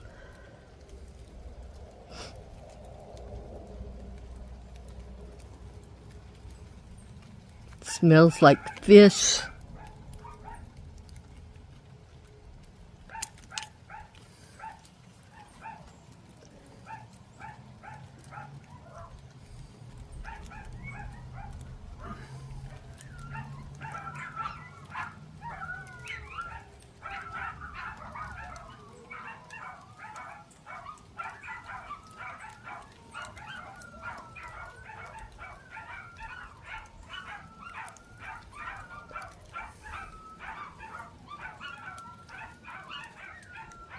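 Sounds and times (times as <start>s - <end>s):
dog whining and yipping: 20.3s - 43.9s.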